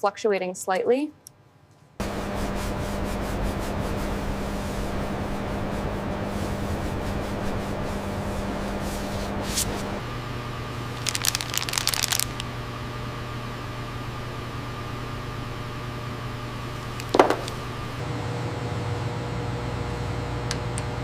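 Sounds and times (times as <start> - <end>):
low machinery hum: 2.0 - 21.0
rapid crackling clicks: 11.0 - 12.4.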